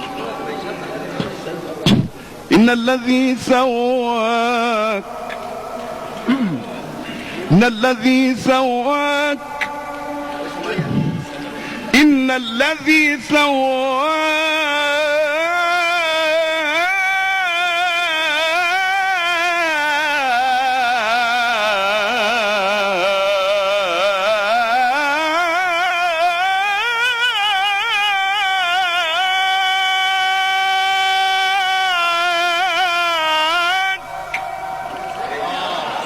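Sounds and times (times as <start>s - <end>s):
man chanting: 0.0s - 34.2s.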